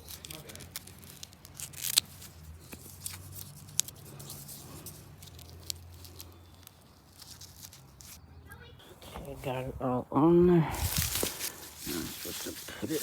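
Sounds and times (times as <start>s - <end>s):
velcro and fabric mesh crackling: 0.0s - 8.2s, 10.7s - 13.0s.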